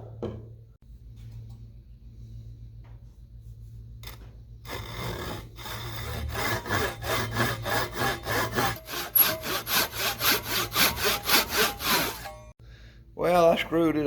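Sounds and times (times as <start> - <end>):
hand tool cutting wood: 4.7 - 12.5.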